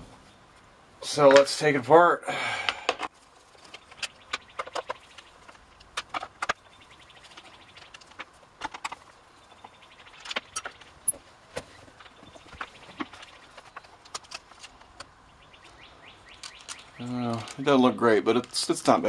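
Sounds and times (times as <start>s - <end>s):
tools and parts clicking and knocking: 2.7s - 15.1s.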